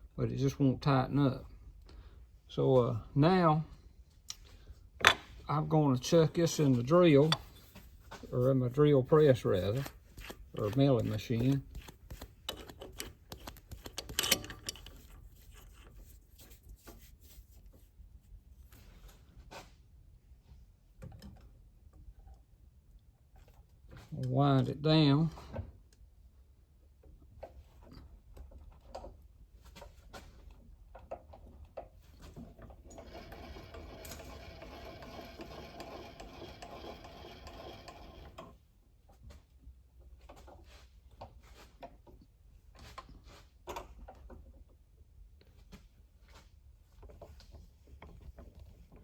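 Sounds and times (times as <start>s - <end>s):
metal parts clicking and rubbing: 9.3s - 17.1s
milling machine rattling whir: 32.8s - 38.5s.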